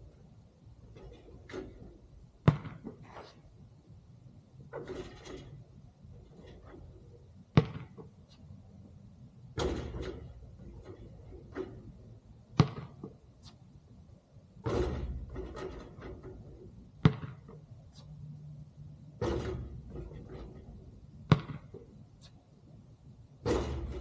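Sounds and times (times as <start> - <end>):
basketball bouncing: 1.0 - 3.2, 7.5 - 8.3, 9.6 - 13.5, 14.6 - 17.7, 19.2 - 22.3, 23.4 - 24.0
ball clattering on hoop: 4.7 - 5.6, 9.6 - 12.0, 14.6 - 17.6, 19.2 - 21.9, 23.4 - 24.0.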